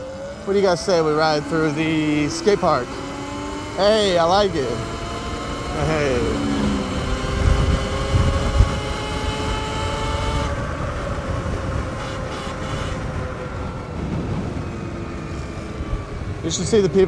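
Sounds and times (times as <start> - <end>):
electric motorbike motor whining: 0.0 - 14.2
low bumps: 0.4 - 16.7
wind rumble on microphone: 4.8 - 17.0.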